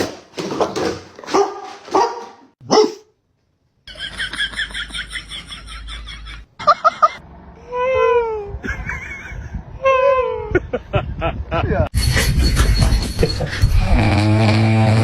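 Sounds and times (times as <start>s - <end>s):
dog barking: 1.2s - 3.1s.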